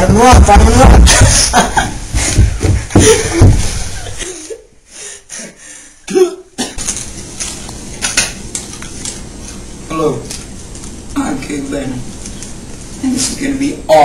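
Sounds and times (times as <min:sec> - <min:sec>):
person coughing: 0:06.1 - 0:06.8.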